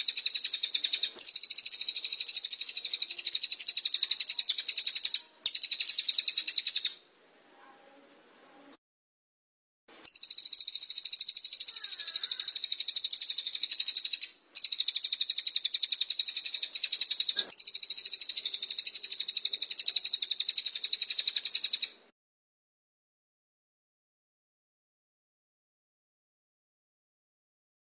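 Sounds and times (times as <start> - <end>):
songbird rapid high trill: 0.0 - 7.0, 10.0 - 22.0.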